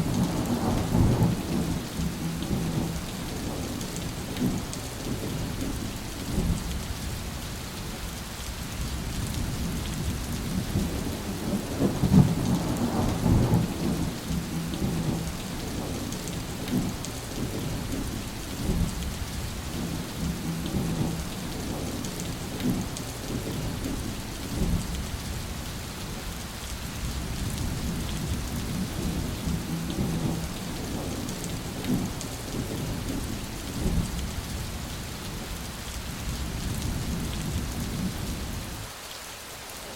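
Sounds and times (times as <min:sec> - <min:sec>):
rolling thunder: 0:00.0 - 0:06.8, 0:09.1 - 0:25.4, 0:26.9 - 0:34.5
steady rain: 0:00.0 - 0:39.9.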